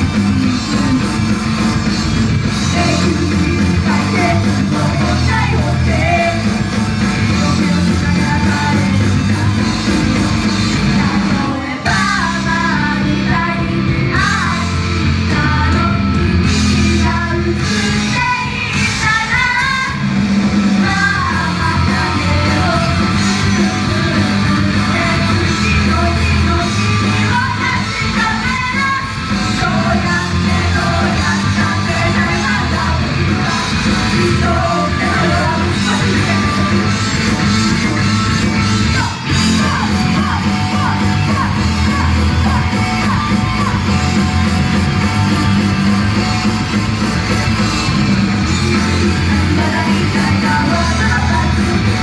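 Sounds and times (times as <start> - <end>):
loud backing music: 0.0 - 52.0
group singing: 2.7 - 10.0, 20.8 - 37.2, 49.1 - 52.0.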